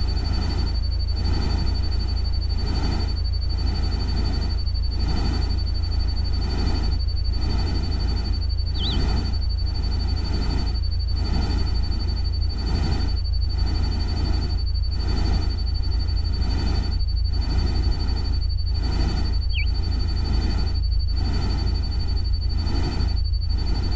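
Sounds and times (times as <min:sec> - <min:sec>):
bird-like chirp: 0:08.7 - 0:09.4, 0:19.3 - 0:19.9
thin high whistling tone: 0:08.8 - 0:09.2, 0:19.4 - 0:19.8.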